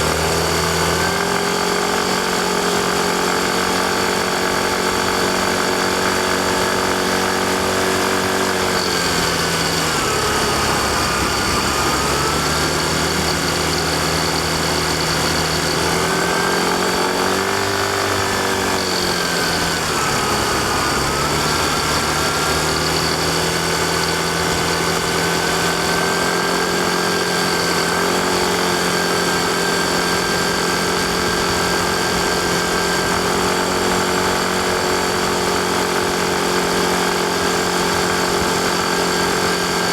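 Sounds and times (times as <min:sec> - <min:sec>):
high whine: 0:00.0 - 0:39.9
scooter engine running: 0:00.0 - 0:39.9.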